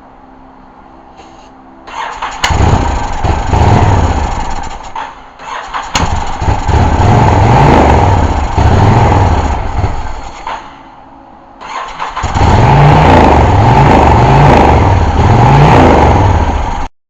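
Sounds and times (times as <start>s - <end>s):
engine running unevenly: 0.0s - 16.9s
engine catching with sharp crack: 4.4s - 6.7s, 9.9s - 10.9s.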